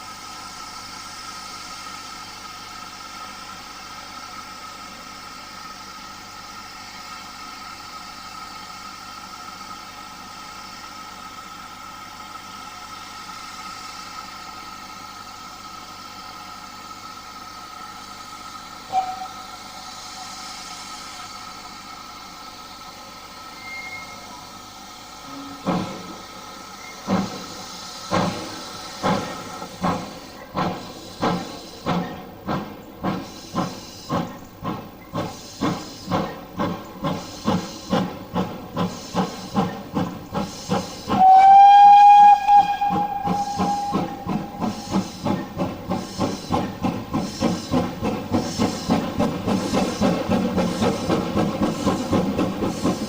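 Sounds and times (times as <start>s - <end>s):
steam hissing: 0.0s - 53.0s
train whistle blast: 18.9s - 19.7s, 23.5s - 24.4s, 25.2s - 25.7s, 41.1s - 45.0s
locomotive exhaust chuffs: 25.0s - 53.0s.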